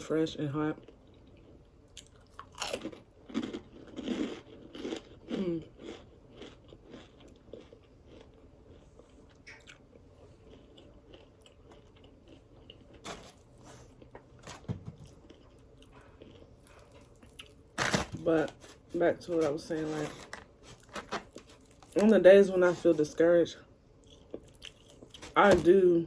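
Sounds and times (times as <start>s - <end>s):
crunching crispy fried food: 1.1s - 9.9s, 10.5s - 14.3s, 15.0s - 22.1s.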